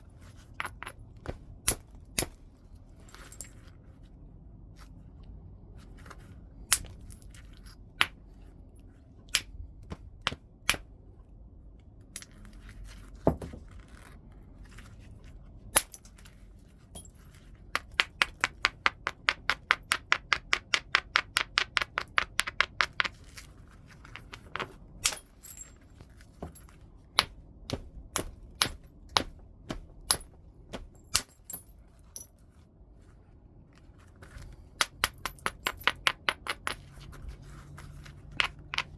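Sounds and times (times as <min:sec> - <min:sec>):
knapping tool striking stone: 0:27.2 - 0:31.6.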